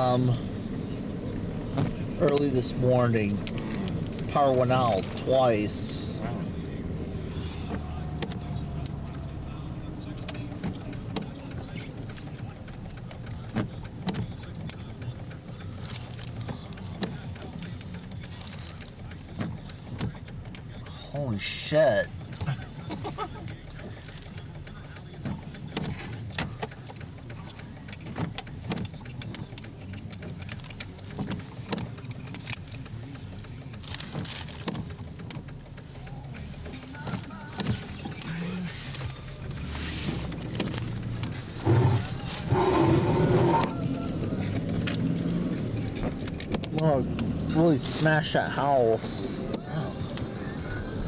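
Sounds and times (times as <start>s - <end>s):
road rumble inside car: 0.0s - 51.0s
sharp rain ticks: 0.2s - 51.0s.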